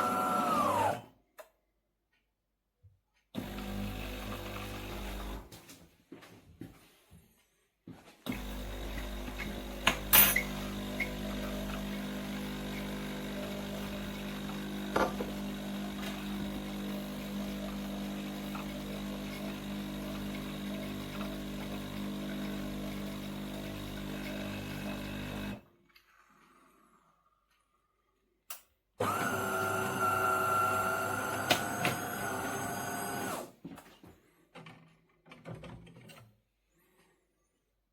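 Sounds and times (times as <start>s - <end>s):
coffee machine humming: 0.0s - 1.0s, 3.4s - 5.5s, 8.3s - 25.6s, 29.0s - 33.5s.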